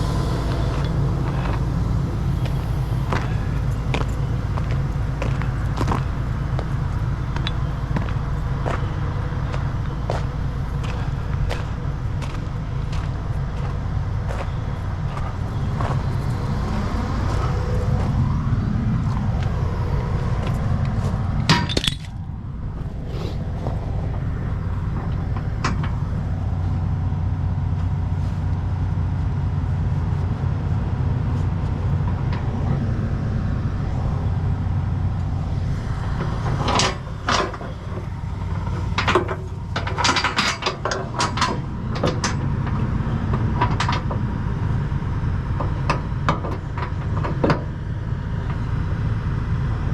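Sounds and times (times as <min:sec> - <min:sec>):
diesel truck engine idling: 0:00.0 - 0:49.9
metal chain clinking: 0:21.5 - 0:22.2.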